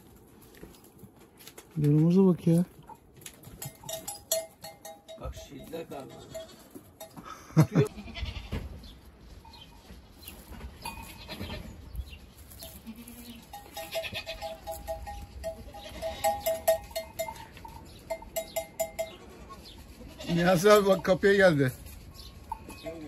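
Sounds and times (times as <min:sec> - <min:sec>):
goats bleating: 0:07.9 - 0:08.6, 0:12.8 - 0:14.7, 0:19.0 - 0:21.1.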